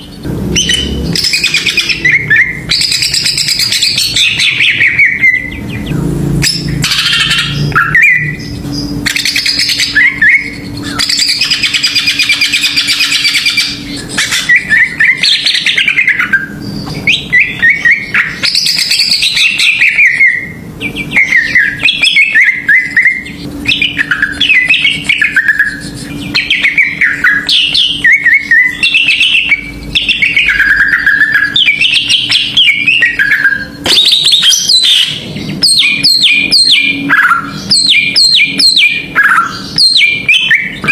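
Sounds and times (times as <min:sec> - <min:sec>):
bird singing whistled phrases: 0:00.0 - 0:40.9.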